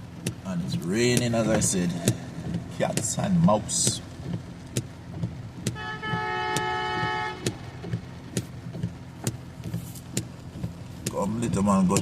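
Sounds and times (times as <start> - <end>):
heavy rain on car: 0.0 - 12.0
sharp clicks: 1.1 - 5.8
car horn toot: 5.6 - 8.0.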